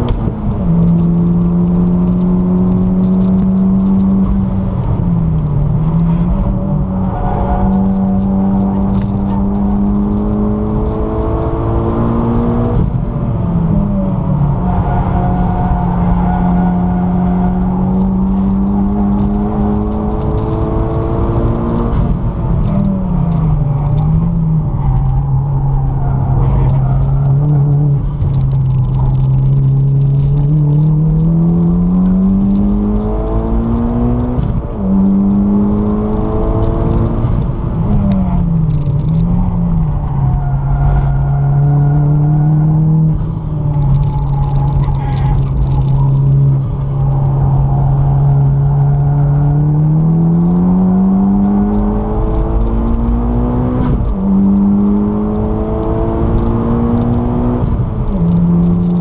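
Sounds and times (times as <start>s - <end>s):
car engine revving: 0.0s - 59.0s
road and tyre noise: 0.0s - 59.0s.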